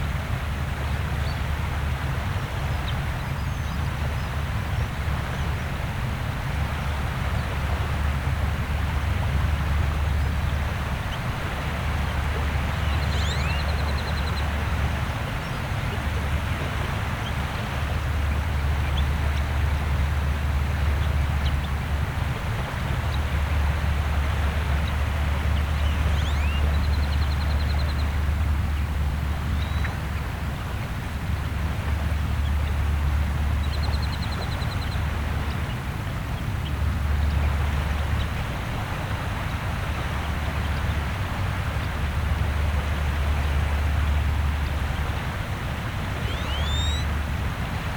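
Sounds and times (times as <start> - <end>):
constant low rumble: 0.0 - 47.9
gentle waves washing: 0.0 - 47.9
bird trilling: 12.8 - 14.4, 25.8 - 27.0, 29.6 - 30.0, 46.2 - 47.1
bird calling high notes: 46.2 - 47.1.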